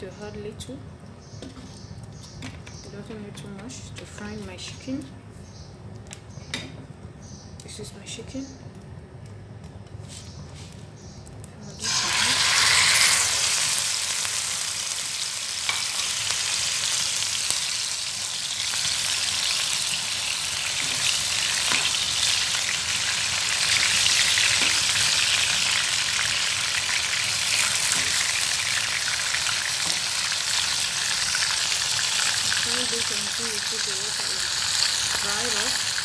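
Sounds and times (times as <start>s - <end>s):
chicken sizzling in hot oil: 11.8s - 36.0s.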